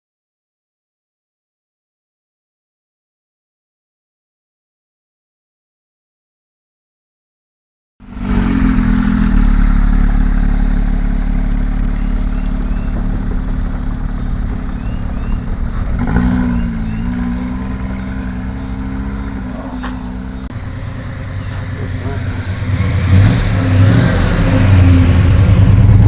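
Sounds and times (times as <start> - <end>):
car engine running: 8.0 - 26.0.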